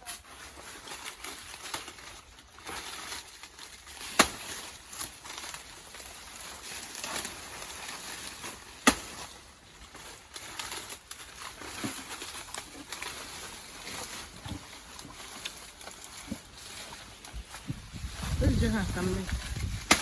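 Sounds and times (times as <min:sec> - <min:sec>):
rustling: 0:00.0 - 0:20.0.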